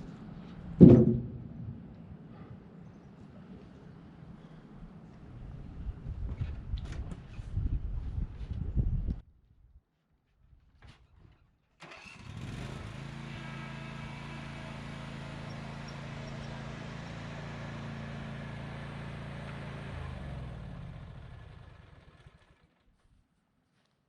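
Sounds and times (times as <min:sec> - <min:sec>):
riding mower engine running: 0:11.8 - 0:22.8.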